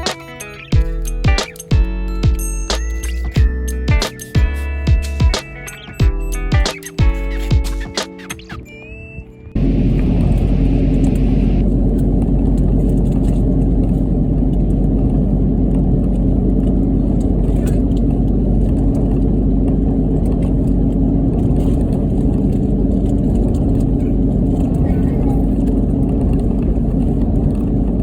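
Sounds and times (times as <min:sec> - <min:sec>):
tyre road noise and engine rumble: 0:09.5 - 0:28.0.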